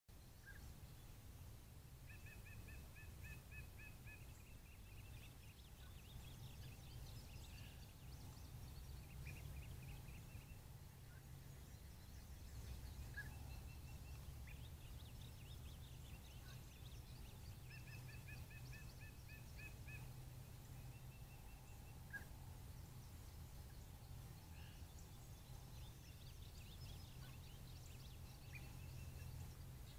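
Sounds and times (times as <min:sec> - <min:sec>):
faint birdsong: 0:00.1 - 0:29.9
low steady hum: 0:00.1 - 0:29.9
bird chirping run: 0:11.8 - 0:17.9.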